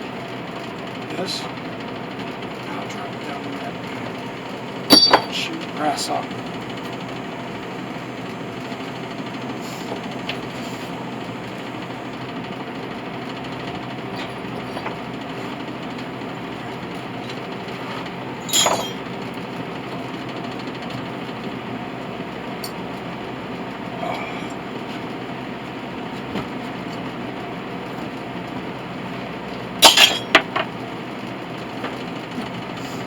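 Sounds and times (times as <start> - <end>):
faint brass clinks: 4.9 - 5.4, 18.5 - 19.0
sharp metallic clank: 4.9 - 5.5, 18.5 - 19.0, 29.8 - 30.5.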